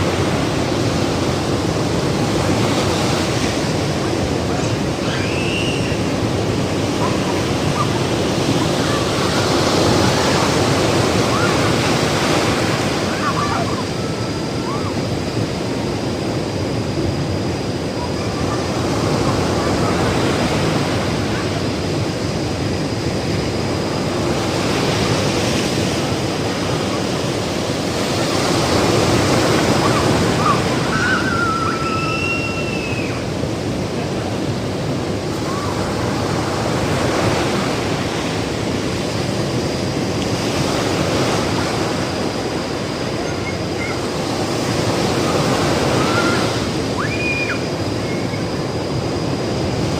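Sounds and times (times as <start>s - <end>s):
ocean waves breaking: 0.0s - 49.9s.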